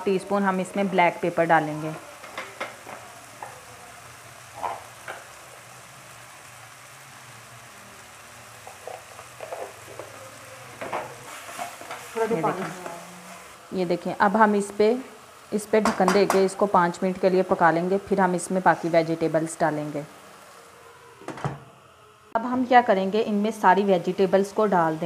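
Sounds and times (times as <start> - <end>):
chicken sizzling in oil: 0.0 - 21.2
spatula stirring in pan: 8.6 - 13.6.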